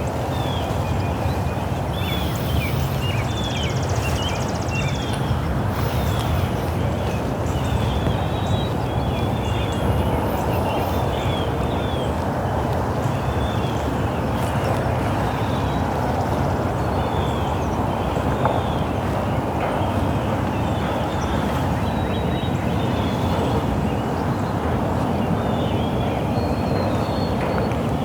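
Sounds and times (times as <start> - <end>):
birds chirping: 0.4 - 12.1
steady rushing noise: 1.8 - 7.2.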